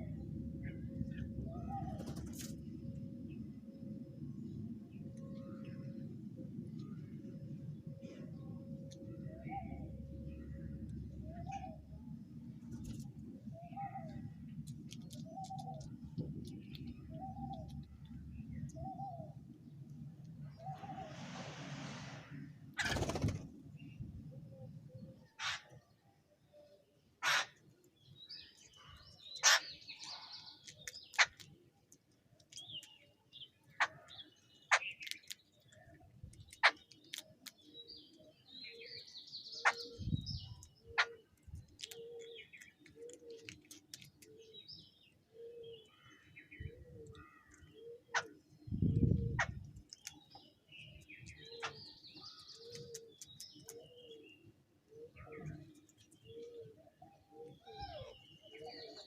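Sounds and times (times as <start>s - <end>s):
birds chirping and calling: 28.2s - 31.6s, 32.5s - 59.0s.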